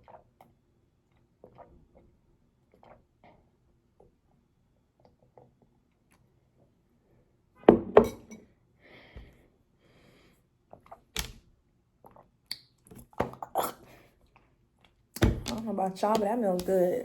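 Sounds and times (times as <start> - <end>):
objects knocking on hard surface: 7.7 - 8.3.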